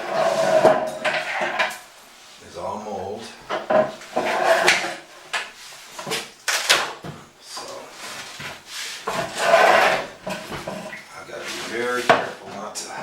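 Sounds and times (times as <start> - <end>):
rustling: 0.0 - 13.0
wooden cabinet doors knocking: 11.9 - 12.8.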